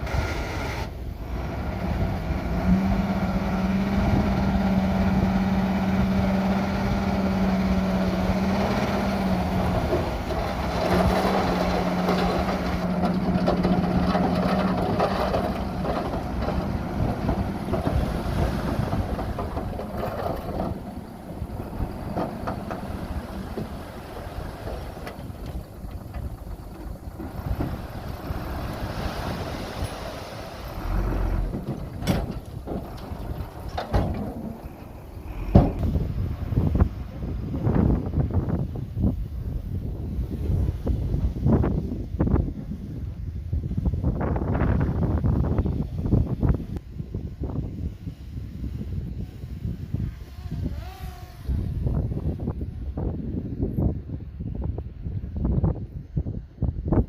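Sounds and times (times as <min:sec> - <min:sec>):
diesel earthmoving machinery running: 0:00.0 - 0:41.2.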